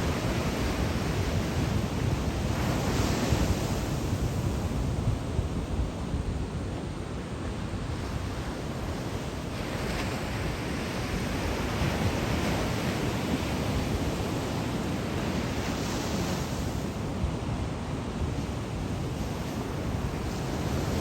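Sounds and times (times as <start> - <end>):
waves breaking on beach: 0.0 - 4.8, 7.6 - 21.0.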